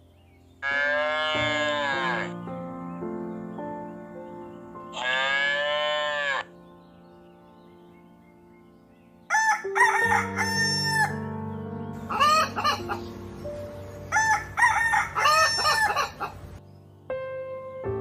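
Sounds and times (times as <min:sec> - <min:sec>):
background music: 0:00.0 - 0:18.0
rooster crowing: 0:09.3 - 0:11.2, 0:12.1 - 0:13.0, 0:14.1 - 0:16.4.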